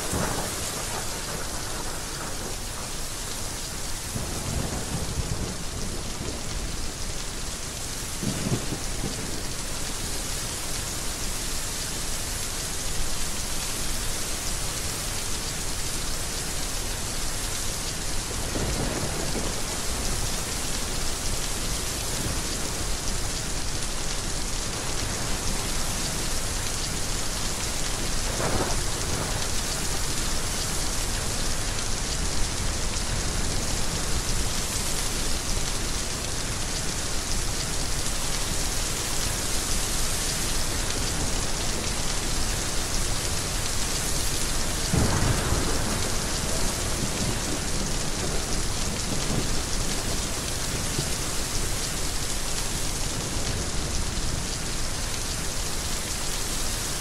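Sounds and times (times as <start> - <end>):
thunder: 0.0 - 2.6, 8.2 - 9.4, 44.9 - 49.5
heavy rain: 0.0 - 57.0.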